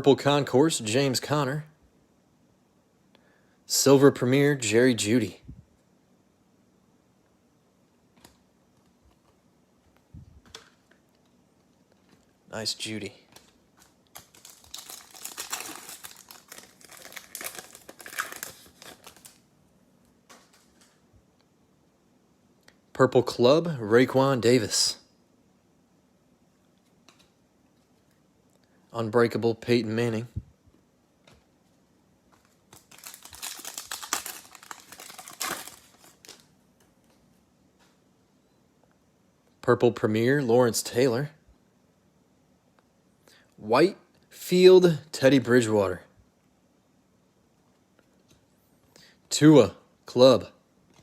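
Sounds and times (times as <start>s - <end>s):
plastic wrapper crinkling: 13.3s - 19.4s, 32.4s - 36.5s.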